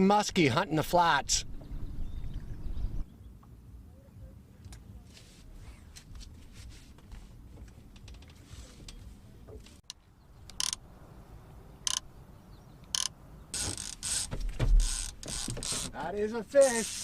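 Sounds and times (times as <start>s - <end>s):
fishing reel clicker ratcheting: 10.5s - 10.8s, 12.9s - 13.1s, 16.6s - 17.0s.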